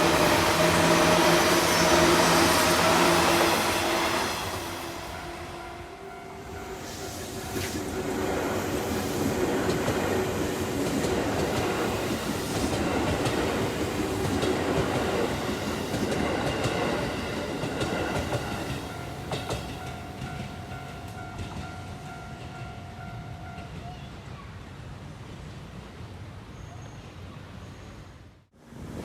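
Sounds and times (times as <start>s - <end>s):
crossing warning bell ringing: 0.0s - 8.2s, 17.0s - 23.9s
electric train passing: 0.0s - 24.2s.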